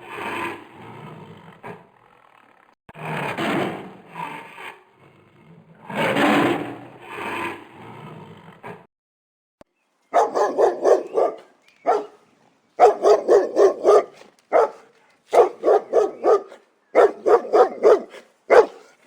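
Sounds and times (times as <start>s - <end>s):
dog barking high yaps: 10.2s - 12.2s, 12.8s - 19.0s.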